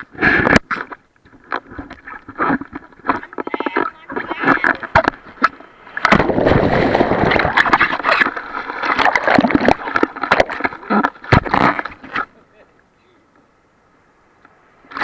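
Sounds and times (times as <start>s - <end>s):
sea water splashing and sloshing: 0.6s - 12.2s.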